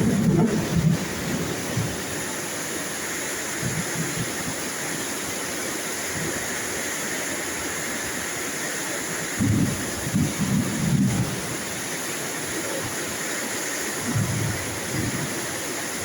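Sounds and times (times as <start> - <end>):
low rumble of thunder: 0.0 - 2.2, 9.3 - 11.6, 14.0 - 15.4
heavy rain falling: 0.0 - 16.0.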